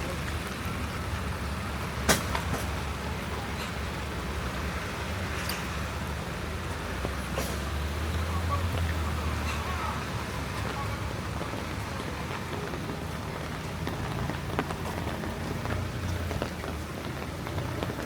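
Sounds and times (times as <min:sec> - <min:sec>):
rain spattering on surfaces: 0:00.0 - 0:18.0
vehicle engine hum: 0:00.0 - 0:18.0.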